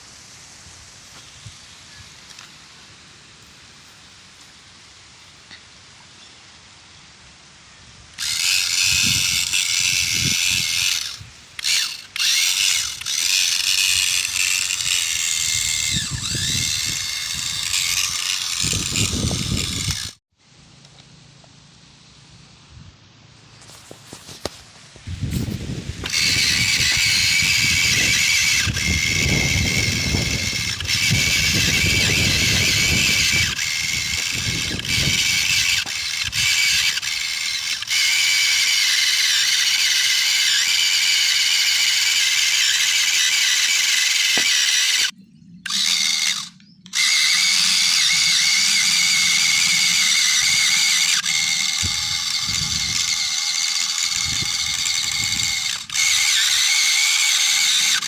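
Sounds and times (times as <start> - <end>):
toy electric motor whining: 8.1 - 20.2, 23.7 - 58.0.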